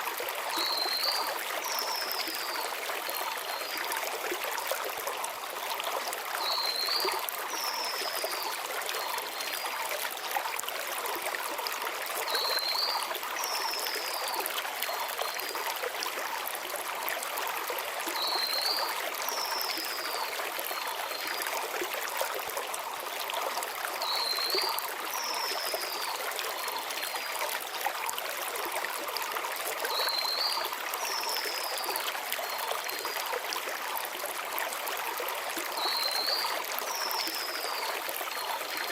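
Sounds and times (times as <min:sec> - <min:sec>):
stream flowing over stones: 0:00.0 - 0:38.9.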